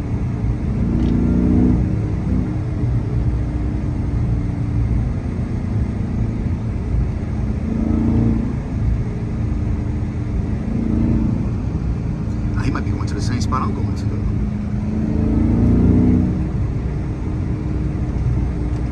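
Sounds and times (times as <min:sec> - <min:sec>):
car exhaust drone: 0:00.0 - 0:18.9.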